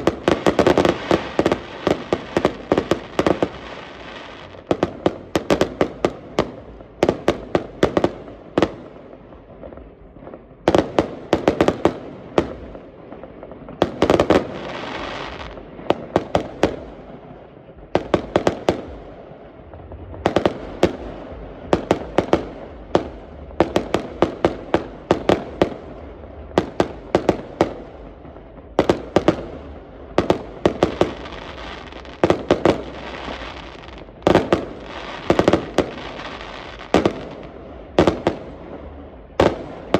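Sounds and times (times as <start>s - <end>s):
fireworks bangs and crackles: 0.0s - 39.9s
low rumble: 18.9s - 32.1s, 32.7s - 39.9s.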